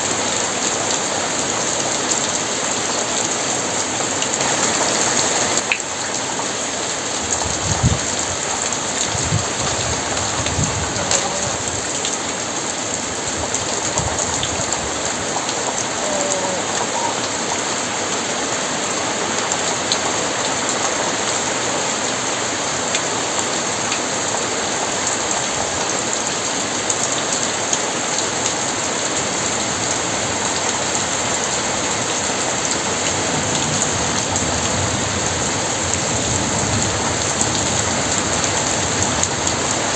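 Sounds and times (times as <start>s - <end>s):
heavy rain: 0.0s - 39.9s
thunder rumbles: 7.3s - 12.0s.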